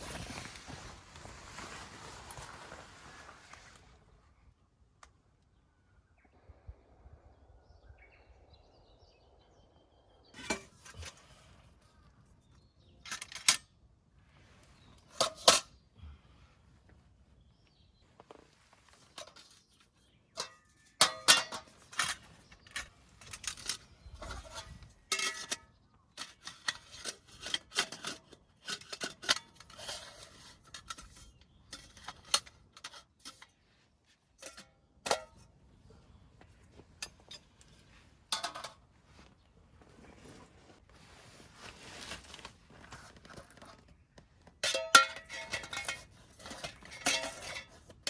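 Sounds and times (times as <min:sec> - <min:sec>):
metal items clinking: 0:37.0 - 0:38.8, 0:44.6 - 0:48.0.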